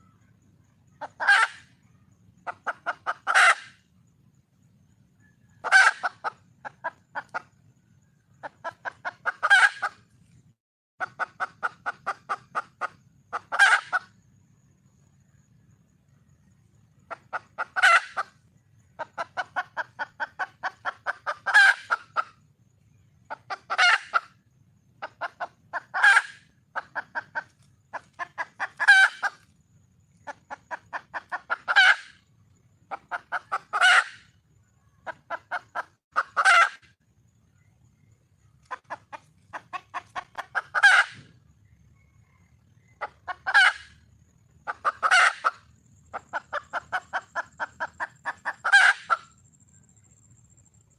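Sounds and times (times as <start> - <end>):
junglefowl hen clucking and squawking: 0.0 - 3.9, 5.2 - 7.6, 8.3 - 10.1, 11.0 - 14.2, 17.0 - 22.5, 23.2 - 29.5, 30.2 - 37.0, 38.0 - 49.4.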